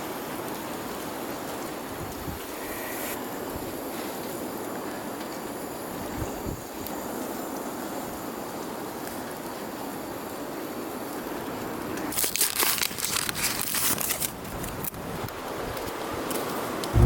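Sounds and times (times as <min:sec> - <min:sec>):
wind noise: 0:01.8 - 0:02.7, 0:05.8 - 0:06.7
plastic crinkling and rustling: 0:12.0 - 0:15.2.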